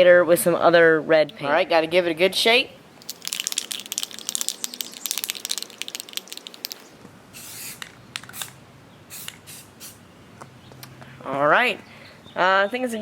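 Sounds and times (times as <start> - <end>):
spray can ball rattling: 3.0 - 8.6
spray paint hissing: 3.0 - 10.0.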